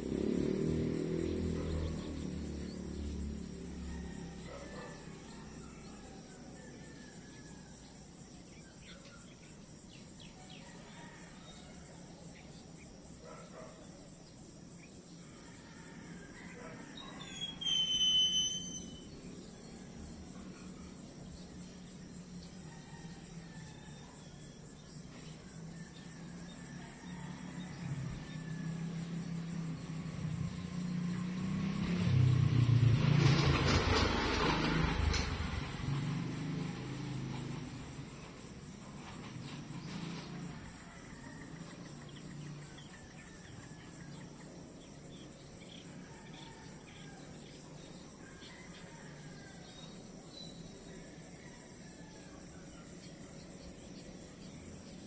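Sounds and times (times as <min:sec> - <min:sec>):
vehicle engine approaching: 0:00.0 - 0:13.3, 0:14.4 - 0:55.0
insects trilling: 0:00.0 - 0:55.0
faint bird chirps: 0:16.6 - 0:19.8.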